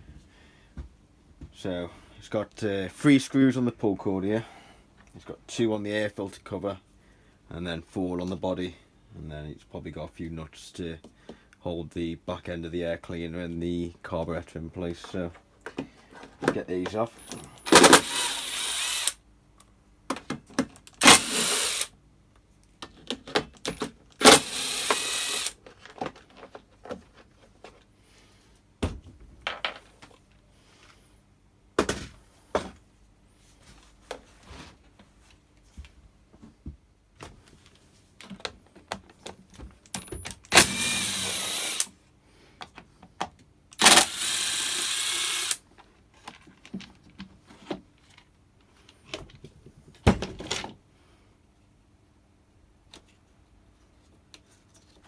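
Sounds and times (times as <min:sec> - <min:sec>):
screws and parts clattering: 0:17.1 - 0:19.1, 0:23.6 - 0:25.5
impact driver hammering: 0:17.6 - 0:19.1, 0:21.0 - 0:21.9, 0:24.2 - 0:25.5, 0:40.5 - 0:41.9, 0:43.8 - 0:45.6.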